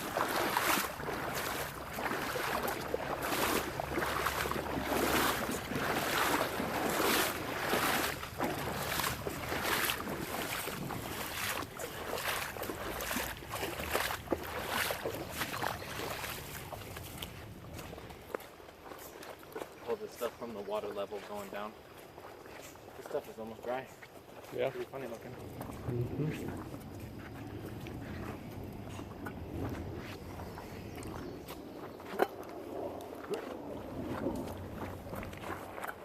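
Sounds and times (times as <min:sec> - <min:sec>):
footsteps wading through water: 0:00.0 - 0:36.0.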